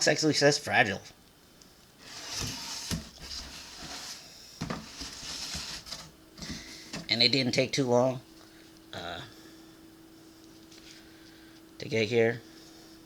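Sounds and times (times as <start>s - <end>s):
cardboard box rustling and scraping: 2.0s - 7.1s.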